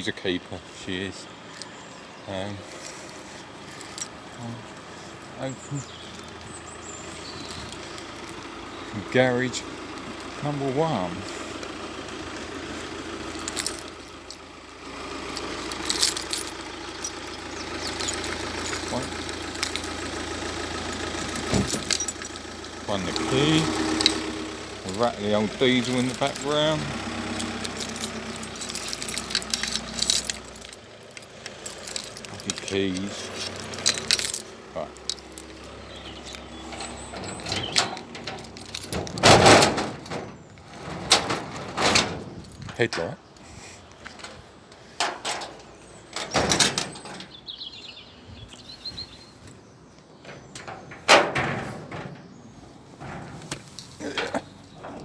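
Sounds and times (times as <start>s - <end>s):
rattly diesel engine idling: 0.6s - 42.7s
metallic clinks and jingles: 2.8s - 4.2s, 13.3s - 14.5s, 15.2s - 42.9s
garage door moving: 35.2s - 42.4s.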